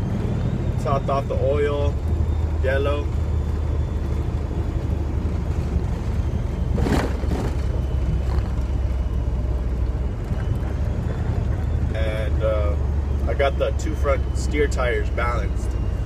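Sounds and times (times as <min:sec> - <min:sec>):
truck diesel engine rumble: 0:00.0 - 0:16.0.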